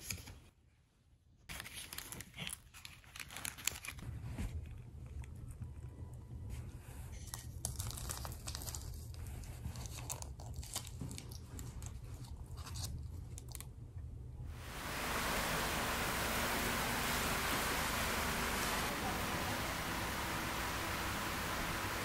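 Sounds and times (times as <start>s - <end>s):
steady rushing hiss: 14.5s - 22.0s.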